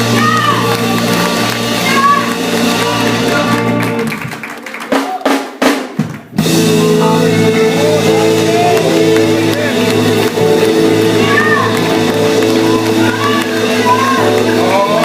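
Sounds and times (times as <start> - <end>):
drum hits: 0.0 - 15.0
gospel band playing: 0.0 - 15.0
voices singing: 6.4 - 15.0.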